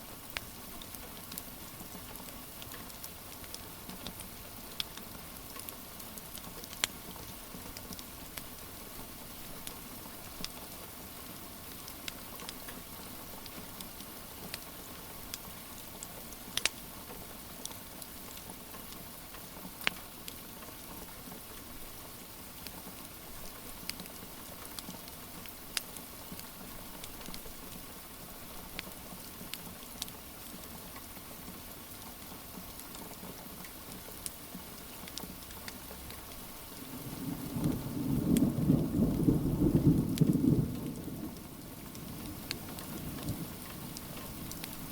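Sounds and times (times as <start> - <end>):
steady rain: 0.0 - 44.9
wood fire crackling: 0.2 - 31.2, 33.6 - 44.9
thunder rolling: 37.0 - 44.5.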